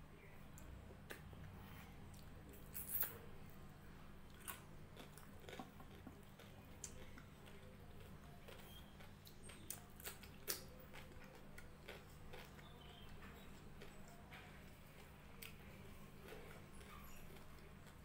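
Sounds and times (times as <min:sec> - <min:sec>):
low steady hum: 0:00.0 - 0:18.0
faint chewing: 0:04.2 - 0:18.0.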